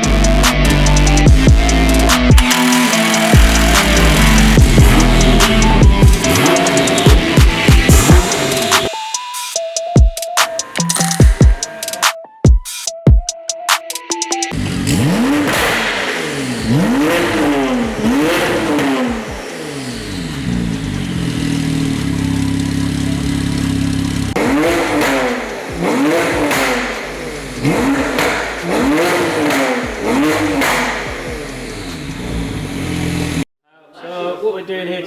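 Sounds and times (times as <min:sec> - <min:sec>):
car engine revving and idling: 0:00.0 - 0:09.0, 0:14.5 - 0:33.5.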